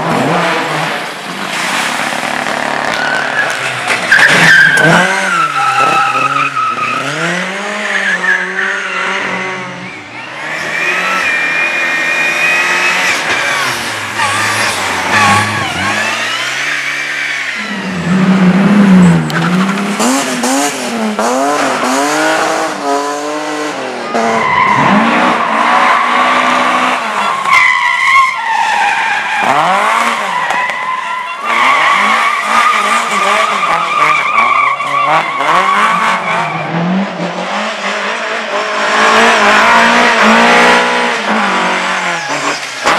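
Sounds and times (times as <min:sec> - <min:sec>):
race car engine revving: 0:00.0 - 0:27.5, 0:29.0 - 0:30.5, 0:31.4 - 0:42.9
tyre squeal: 0:02.8 - 0:18.2.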